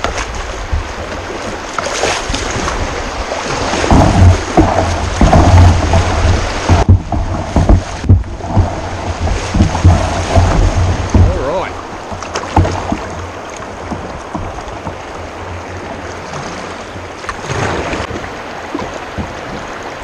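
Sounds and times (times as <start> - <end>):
knocks and splashes: 0.0 - 20.0
rushing river water: 0.0 - 20.0
wind buffeting microphone: 0.0 - 20.0
heavy rumbling: 2.8 - 18.1.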